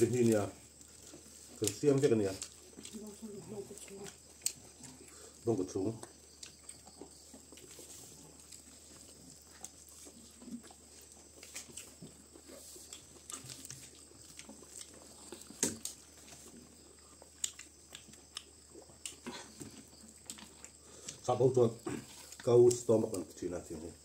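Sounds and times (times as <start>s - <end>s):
chewing and wet mouth sounds: 0.2s - 21.3s
fingers clicking and rustling on leaf: 1.2s - 4.6s.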